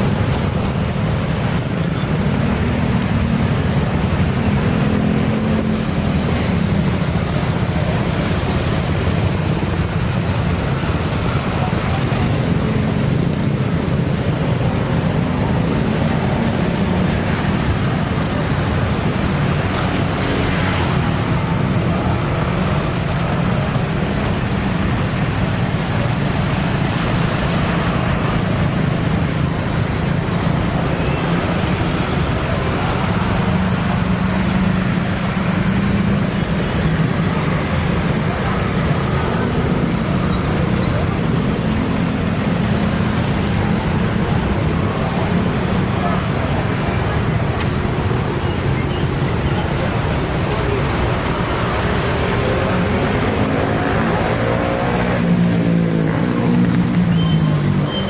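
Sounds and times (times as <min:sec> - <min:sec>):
loud rumble of vehicle traffic: 0:00.0 - 0:58.0.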